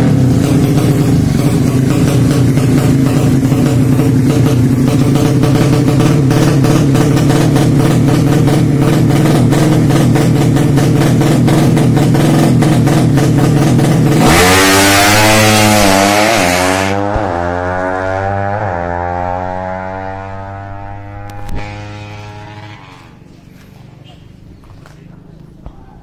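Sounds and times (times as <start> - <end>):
engine running steadily: 0.0 - 17.5
wavering horn-like tone: 21.6 - 23.2.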